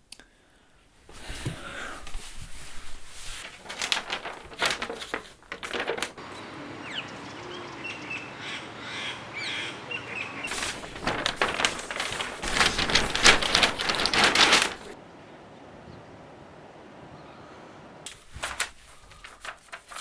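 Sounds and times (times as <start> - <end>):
steady outdoor hiss: 0.0 - 20.0
birds calling: 6.2 - 10.7.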